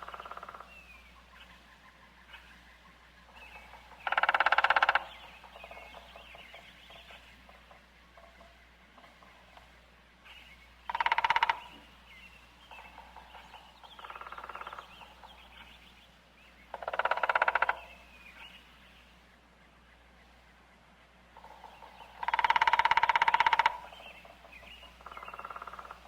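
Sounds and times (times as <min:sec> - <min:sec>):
large bird rattling calls: 0:00.0 - 0:15.8, 0:16.7 - 0:18.6, 0:21.4 - 0:26.0
faint bird chirps: 0:00.0 - 0:26.0.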